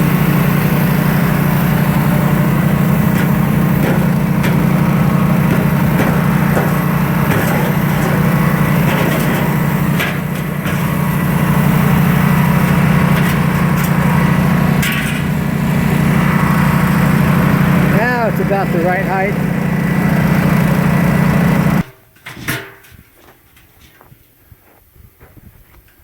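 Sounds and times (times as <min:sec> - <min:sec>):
generator engine running: 0:00.0 - 0:22.0
clicks and knocks: 0:03.1 - 0:10.9.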